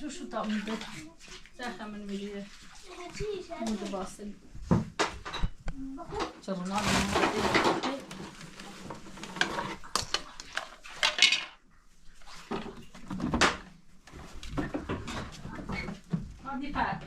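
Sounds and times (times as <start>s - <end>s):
dishes and cutlery clinking: 7.1s - 11.6s.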